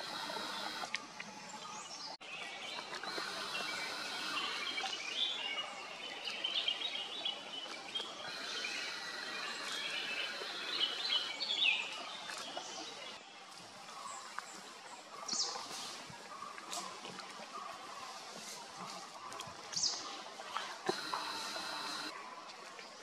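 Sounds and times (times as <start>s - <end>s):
small birds chirping: 0.0s - 0.9s, 1.5s - 13.2s, 20.8s - 22.1s
outdoor background hiss: 8.2s - 12.1s.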